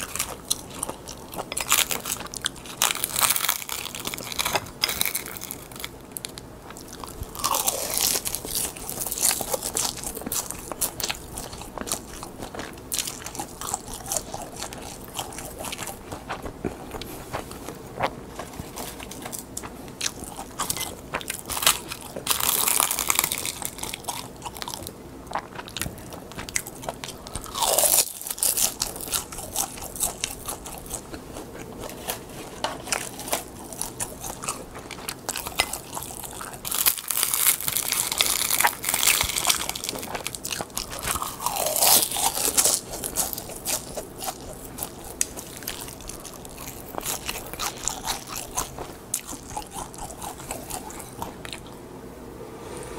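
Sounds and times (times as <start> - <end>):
chewing and crunching crisp seaweed: 0.0 - 51.8.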